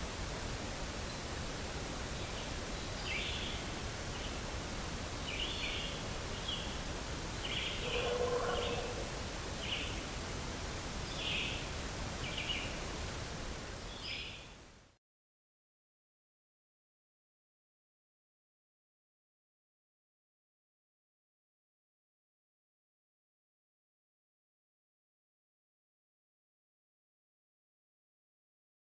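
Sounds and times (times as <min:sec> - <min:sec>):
low pitched call: 0:07.8 - 0:09.1.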